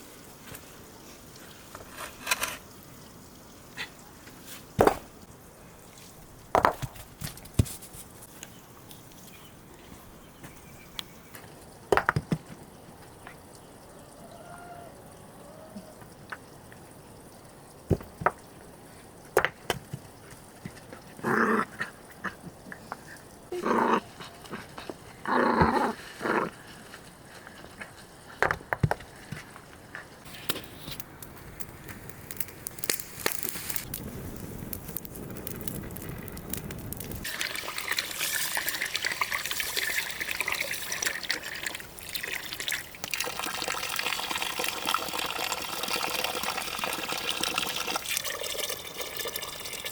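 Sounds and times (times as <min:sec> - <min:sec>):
running water hissing: 0:30.2 - 0:49.9.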